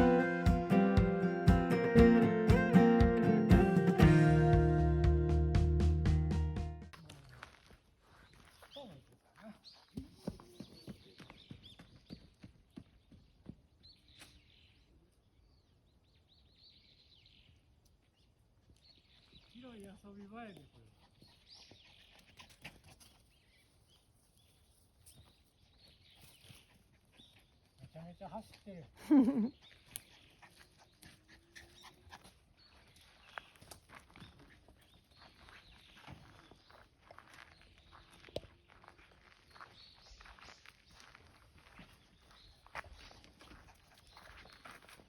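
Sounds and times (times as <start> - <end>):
dog panting: 29.6 - 32.5, 43.2 - 45.0.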